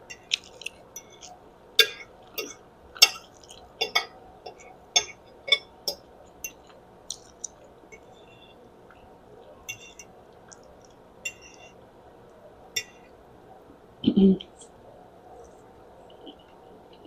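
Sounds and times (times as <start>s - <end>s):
fork clinking against a dish: 9.7s - 10.1s, 11.3s - 11.8s, 12.8s - 13.1s.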